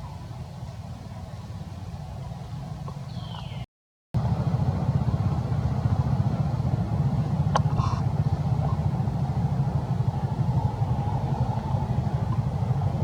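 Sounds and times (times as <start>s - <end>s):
motorbike engine rumbling: 4.2s - 13.0s.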